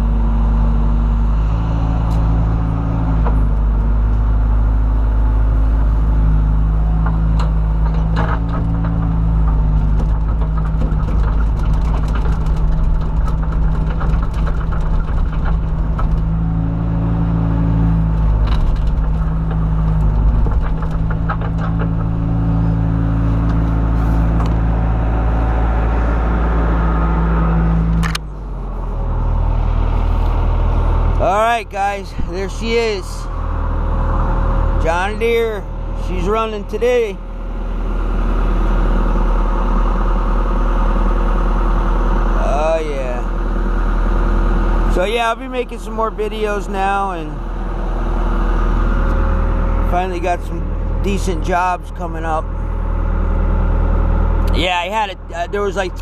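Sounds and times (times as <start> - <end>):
excavator diesel engine: 0.0 - 56.0
metal clanks and knocks: 6.9 - 16.6, 18.1 - 25.0.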